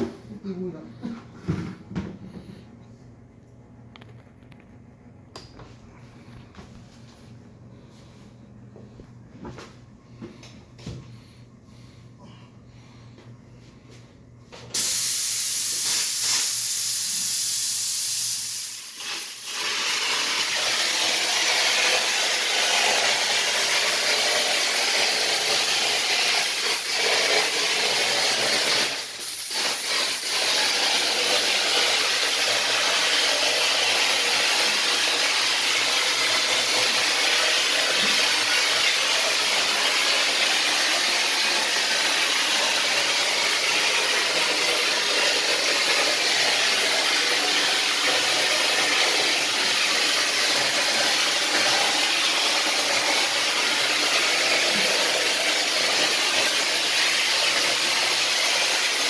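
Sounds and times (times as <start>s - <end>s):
loud steady air hiss: 14.7s - 59.0s.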